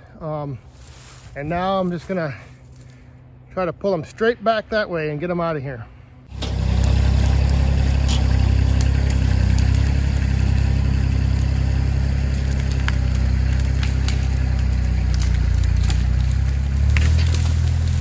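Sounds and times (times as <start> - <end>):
tractor diesel engine running: 6.3 - 18.0.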